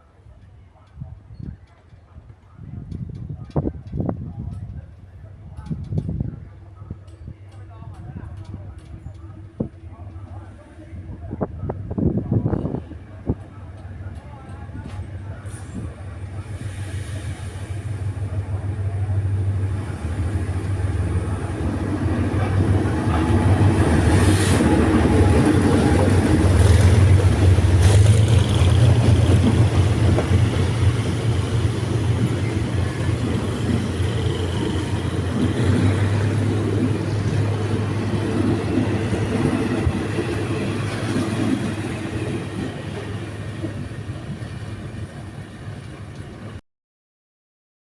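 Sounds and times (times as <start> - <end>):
diesel train passing: 5.0 - 46.6
wheels rumbling: 14.9 - 45.9.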